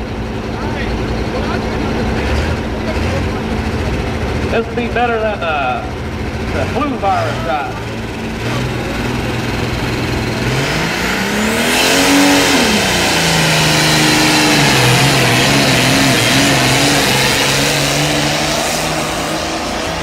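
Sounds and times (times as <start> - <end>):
tractor engine revving: 0.0 - 20.0
loud rushing hiss: 11.0 - 20.0.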